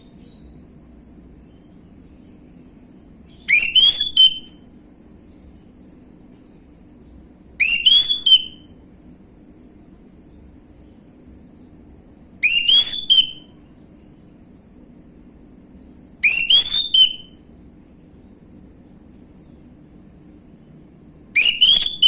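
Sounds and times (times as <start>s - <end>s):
faint low hum: 0.0s - 22.0s
thrush singing whistled notes: 0.5s - 14.1s, 15.0s - 17.6s, 21.4s - 22.0s.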